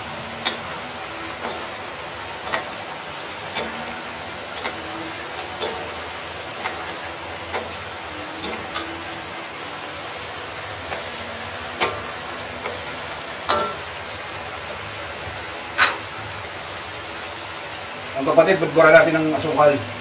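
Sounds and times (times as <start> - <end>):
food frying in bubbling oil: 0.0 - 20.0
spatulas knocking and scraping wok: 0.3 - 14.8, 15.5 - 16.8.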